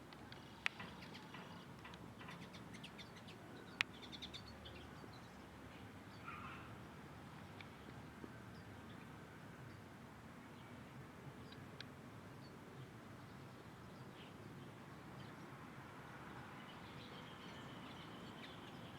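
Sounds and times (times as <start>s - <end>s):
small birds chirping: 0.3s - 6.8s.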